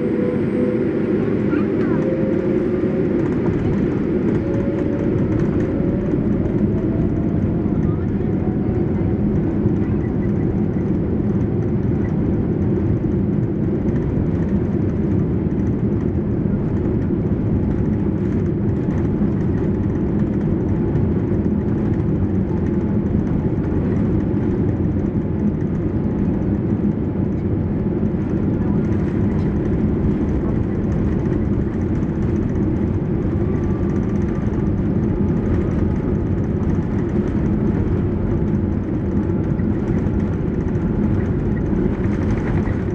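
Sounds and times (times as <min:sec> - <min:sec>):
aircraft cabin engine rumble: 0:00.0 - 0:42.9.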